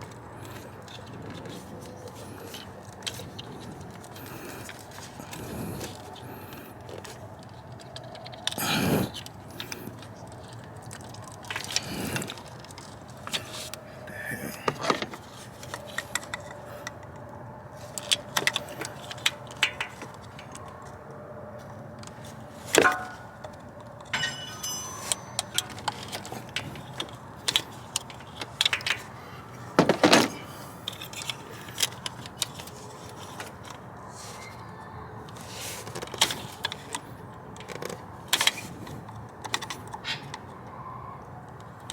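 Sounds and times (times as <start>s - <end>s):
faint background hum: 0.0s - 41.9s
hand tools clattering: 22.8s - 23.5s, 24.1s - 27.6s.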